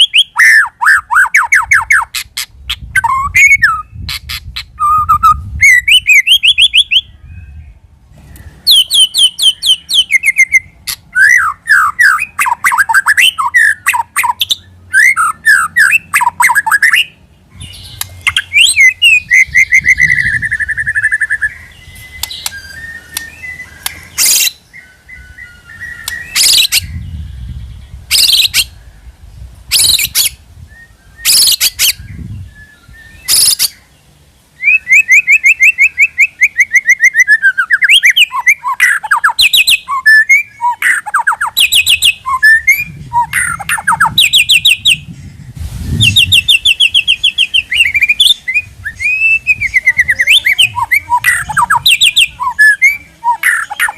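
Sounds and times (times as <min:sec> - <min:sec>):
bird singing whistled trills: 0:00.0 - 0:29.1, 0:29.7 - 0:33.9, 0:34.5 - 0:53.9
harsh bird notes: 0:00.0 - 0:29.1.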